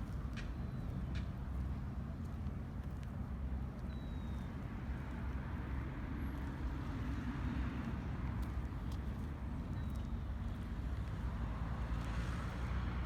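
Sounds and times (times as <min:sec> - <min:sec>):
faint high chirp: 0:03.8 - 0:04.5.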